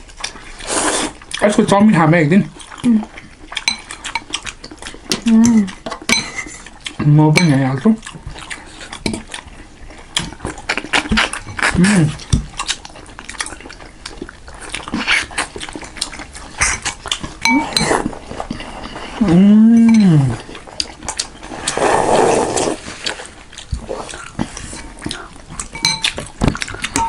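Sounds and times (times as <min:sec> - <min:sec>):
chewing: 0:00.0 - 0:01.7, 0:02.5 - 0:27.0
slurping noodle soup: 0:00.5 - 0:01.2, 0:16.6 - 0:25.4
spoon clicking on bowl: 0:25.8 - 0:26.2.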